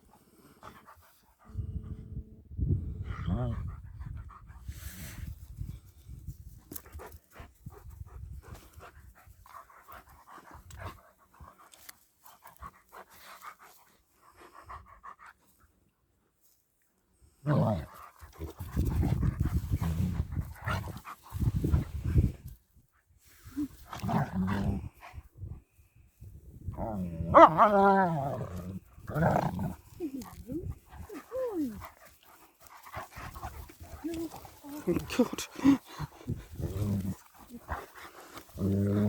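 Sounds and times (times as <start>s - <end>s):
dogs panting: 28.8s - 39.0s.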